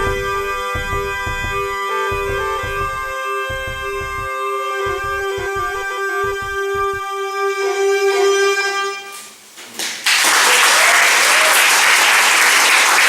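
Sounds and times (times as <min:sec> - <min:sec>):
music with held note over drone: 0:00.0 - 0:07.7
audience applause: 0:09.8 - 0:13.0.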